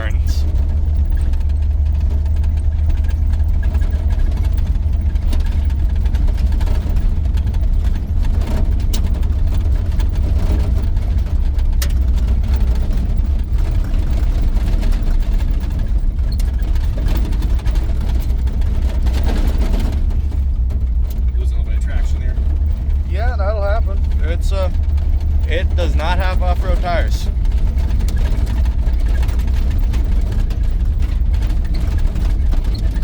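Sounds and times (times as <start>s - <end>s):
engine and road rumble: 0.0s - 33.0s
faint clicks and rattles: 0.0s - 33.0s.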